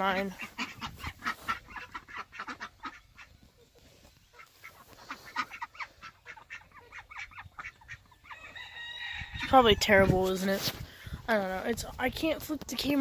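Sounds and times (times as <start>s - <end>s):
ducks quacking: 0.0s - 8.6s.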